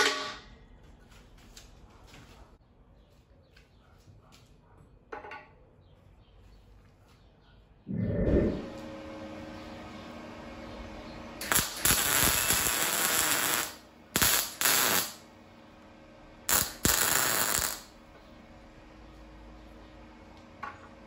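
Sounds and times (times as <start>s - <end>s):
welding arc crackling and hissing: 11.4s - 15.2s, 16.5s - 18.0s.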